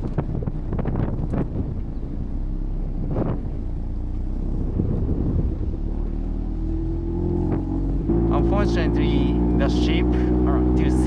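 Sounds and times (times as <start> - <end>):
wind on microphone: 0.0 - 8.3.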